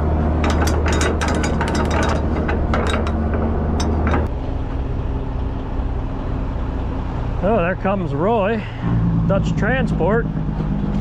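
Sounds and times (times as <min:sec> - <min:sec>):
diesel engine idling: 0:00.0 - 0:11.0
sharp clicks and knocks: 0:00.4 - 0:04.3.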